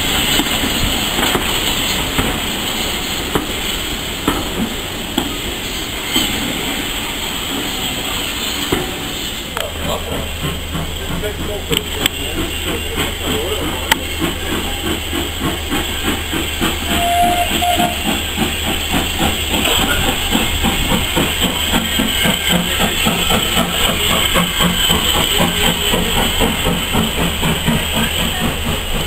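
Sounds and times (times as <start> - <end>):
steam train carriage rumble: 0.0 - 29.0
two-part train whistle: 16.9 - 18.1.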